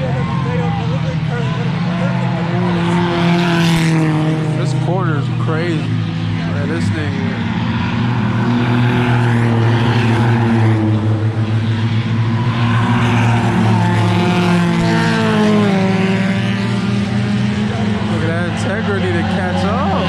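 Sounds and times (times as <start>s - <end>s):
race car engines: 0.0s - 20.0s.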